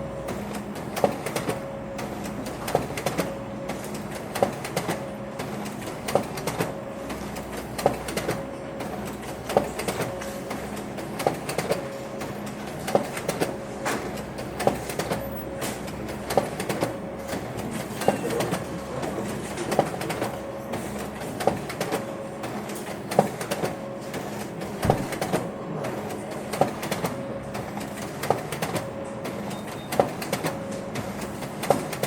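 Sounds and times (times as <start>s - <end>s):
printer mechanical hum: 0.0s - 32.0s
printer sharp knock: 24.7s - 25.5s, 31.6s - 32.0s.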